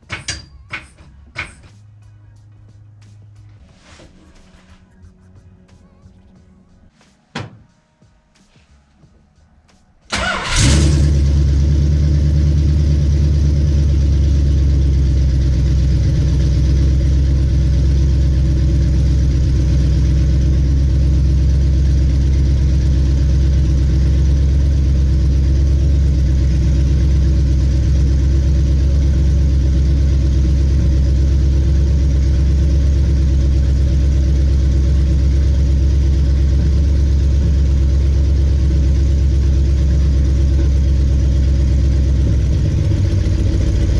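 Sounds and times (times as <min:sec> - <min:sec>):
engine idling: 0:10.1 - 0:43.9.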